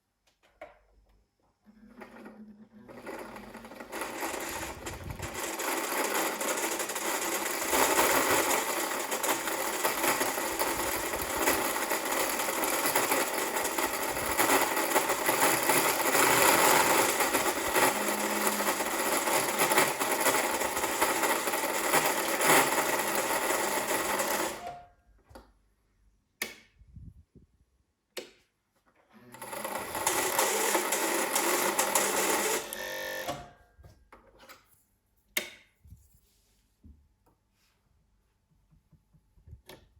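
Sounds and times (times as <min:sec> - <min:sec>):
sewing machine running: 0:01.8 - 0:24.8, 0:29.2 - 0:33.4.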